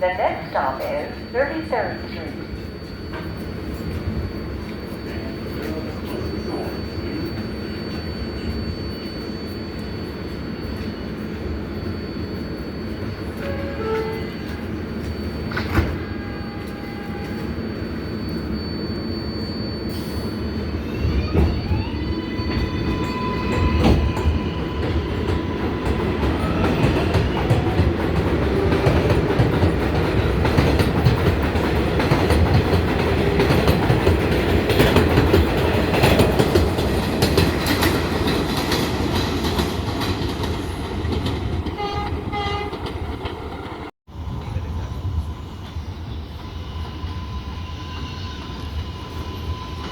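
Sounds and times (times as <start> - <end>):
rising train motor tones: 0.0 - 34.7
train wheels rumbling on rails: 19.8 - 49.9.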